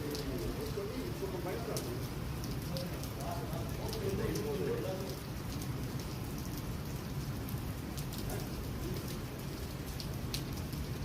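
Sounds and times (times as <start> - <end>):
rain falling: 0.0 - 11.0
sharp drip clicks: 7.9 - 10.9.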